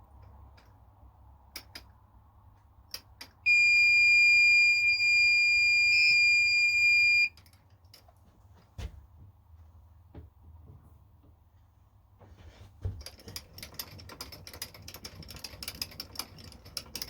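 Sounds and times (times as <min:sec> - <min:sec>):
electronic buzzer beep: 0:03.5 - 0:07.3.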